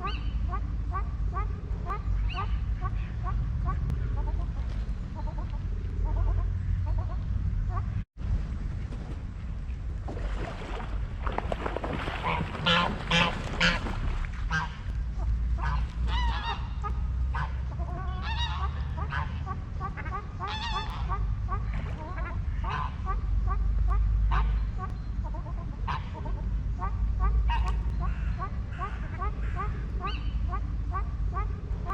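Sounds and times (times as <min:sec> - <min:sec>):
steady low rumble: 0:00.0 - 0:31.9
waterfowl honking: 0:12.0 - 0:31.9.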